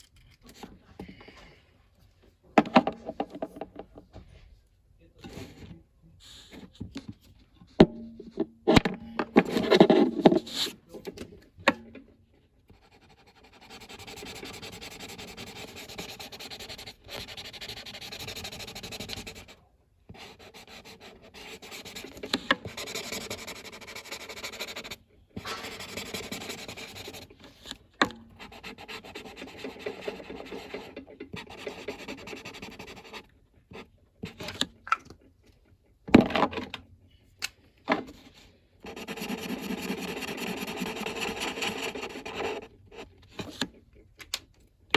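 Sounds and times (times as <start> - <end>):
colouring tool rubbing on paper: 12.7 - 27.4, 28.4 - 33.3, 38.8 - 43.1.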